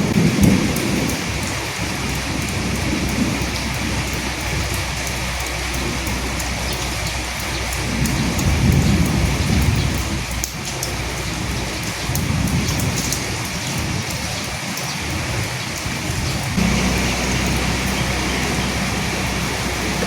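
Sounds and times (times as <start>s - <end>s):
low rumble of thunder: 0.0s - 20.0s
steady rain falling: 0.0s - 20.0s
steady low hum: 16.6s - 20.0s.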